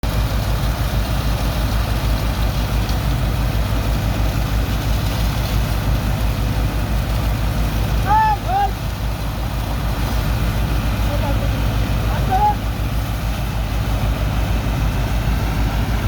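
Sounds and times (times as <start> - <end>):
heavy diesel engine throbbing: 0.0 - 16.0
rushing noise: 3.6 - 16.0.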